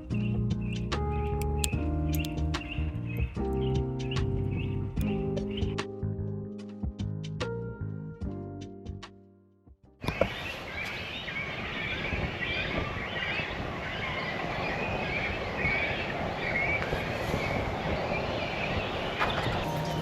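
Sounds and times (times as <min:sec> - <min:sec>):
small birds chirping: 0:00.0 - 0:05.8, 0:10.0 - 0:20.0.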